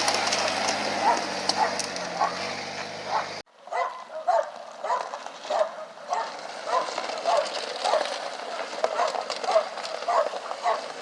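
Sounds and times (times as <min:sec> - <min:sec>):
engine running: 0:00.0 - 0:03.4
dog barking: 0:01.0 - 0:10.9.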